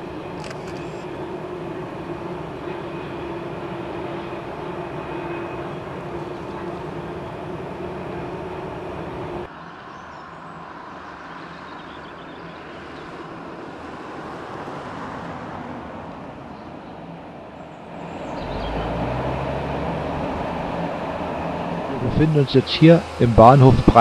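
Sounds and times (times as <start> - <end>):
low hum: 17.8 - 24.0
freight wagons rolling rumble: 18.0 - 24.0.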